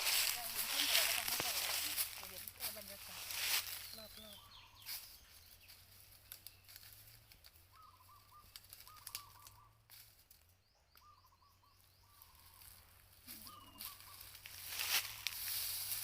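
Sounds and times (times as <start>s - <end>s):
faint bird calls: 3.1s - 5.8s, 6.4s - 9.8s, 10.8s - 15.4s.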